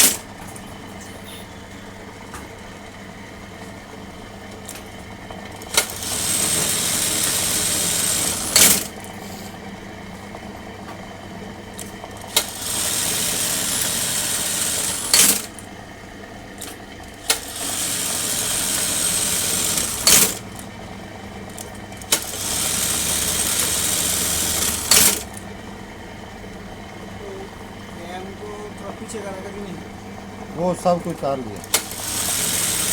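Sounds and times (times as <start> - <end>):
sewing machine stitching rapidly: 0.0 - 0.3, 5.5 - 9.2, 11.7 - 15.7, 16.6 - 20.7, 21.5 - 25.4, 31.6 - 32.9
sewing machine motor hum: 0.0 - 32.9
sewing machine click: 5.5 - 9.0, 11.8 - 12.7, 14.6 - 15.6, 16.6 - 20.6, 21.5 - 25.4, 31.6 - 32.9.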